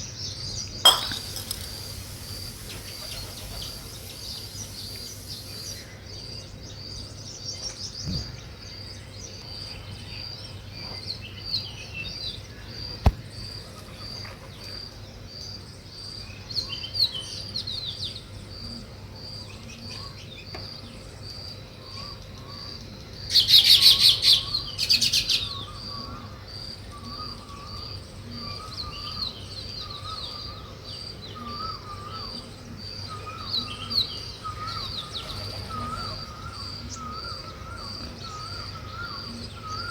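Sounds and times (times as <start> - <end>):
birds chirping and chattering: 0.9 - 7.0, 7.6 - 8.6, 27.0 - 39.9.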